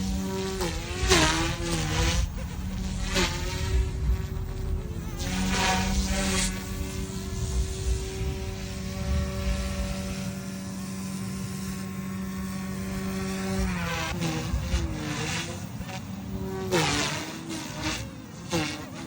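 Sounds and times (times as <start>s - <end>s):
rc helicopter motor whining: 0.0s - 19.0s
rush of air: 0.8s - 10.8s.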